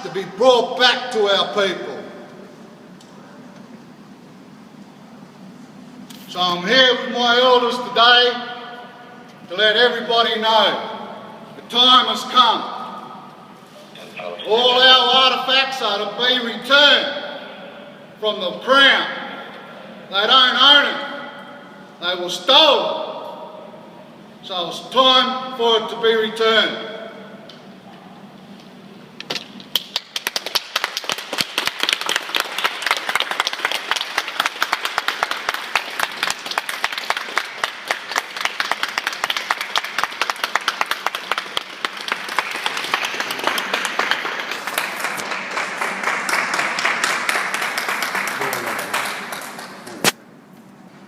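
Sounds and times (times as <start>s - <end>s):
crowd clapping: 29.7s - 50.2s.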